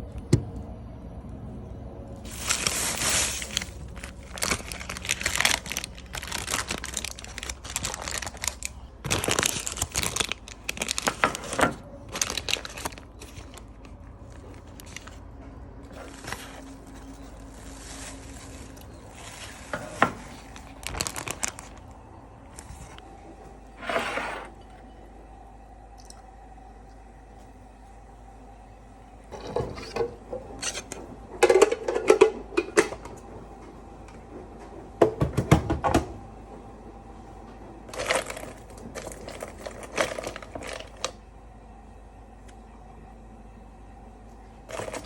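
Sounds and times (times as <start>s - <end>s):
crinkling and rustling: 2.2s - 23.5s, 37.3s - 41.2s, 44.6s - 45.0s.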